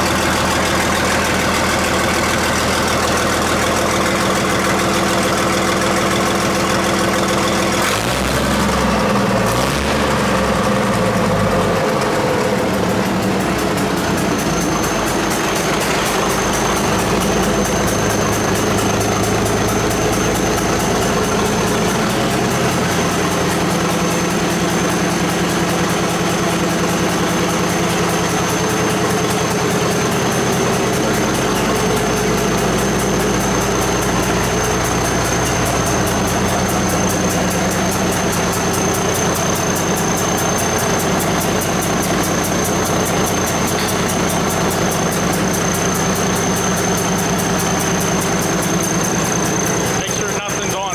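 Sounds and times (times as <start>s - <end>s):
truck diesel engine idling: 0.0s - 50.9s.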